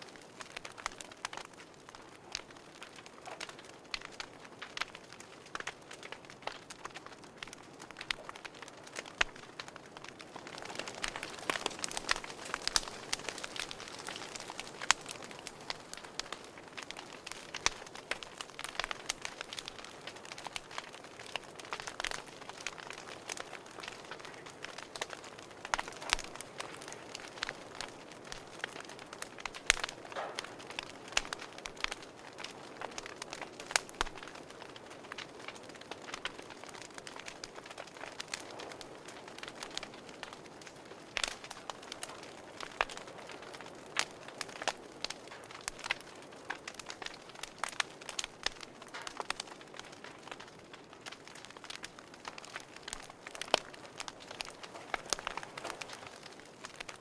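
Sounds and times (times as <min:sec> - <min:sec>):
wood fire crackling: 0:00.0 - 0:57.0
hiss of burning: 0:09.8 - 0:34.2.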